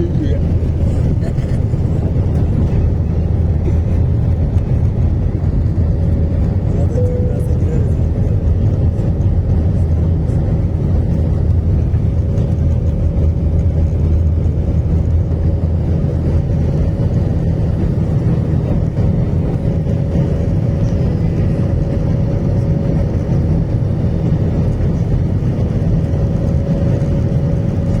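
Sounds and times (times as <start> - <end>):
aircraft cabin engine drone: 0.0 - 28.0
faint high hum: 6.8 - 7.9.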